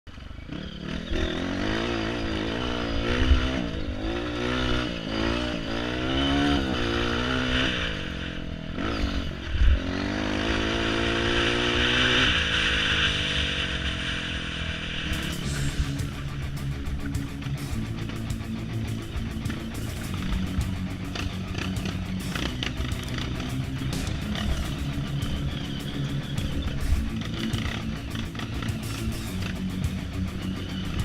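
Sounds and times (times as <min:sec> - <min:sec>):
dirt bike engine revving: 0:00.1 - 0:31.0
low thumps: 0:15.2 - 0:30.4.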